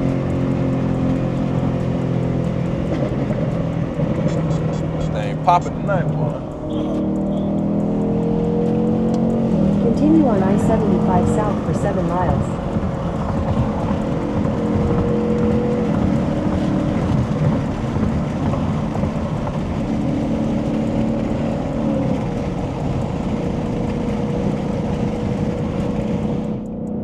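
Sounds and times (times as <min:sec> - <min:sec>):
car engine rumble: 0:00.0 - 0:27.0
road noise: 0:00.0 - 0:27.0.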